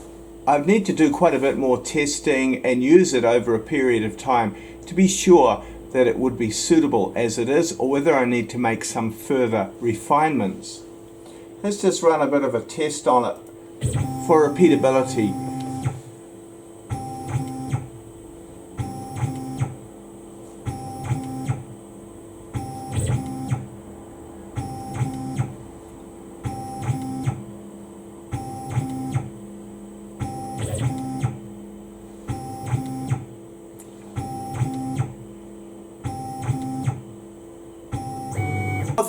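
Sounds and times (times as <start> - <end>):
steady machine hum: 0.0 - 39.0.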